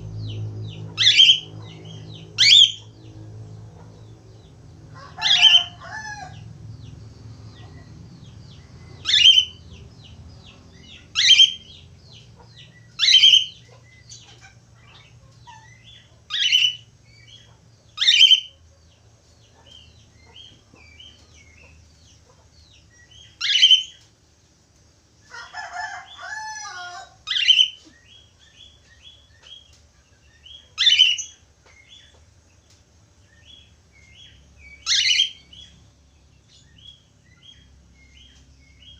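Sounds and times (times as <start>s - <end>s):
warbling bird chatter: 0.0s - 18.6s
budgerigar twittering: 0.8s - 2.9s, 9.0s - 9.6s, 10.8s - 11.8s, 13.0s - 17.4s, 18.0s - 18.5s, 23.2s - 24.0s, 27.3s - 27.8s, 30.8s - 31.4s, 34.7s - 35.7s
budgerigar chirps: 0.9s - 2.9s, 9.0s - 9.6s, 11.2s - 11.8s, 13.0s - 16.8s, 17.4s - 18.6s, 23.2s - 24.0s, 27.3s - 27.8s, 30.8s - 31.4s, 34.2s - 35.7s.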